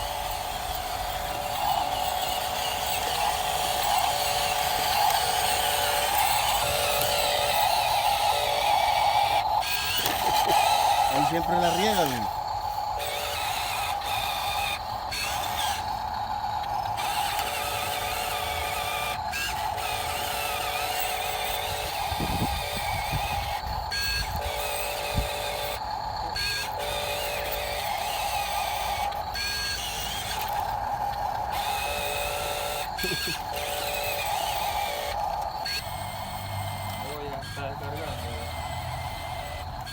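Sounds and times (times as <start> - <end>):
heavy truck engine droning: 0.0 - 39.9.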